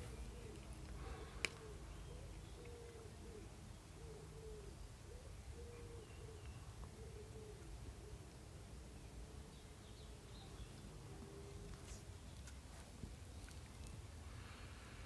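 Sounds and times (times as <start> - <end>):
pigeon cooing: 0.0 - 8.2.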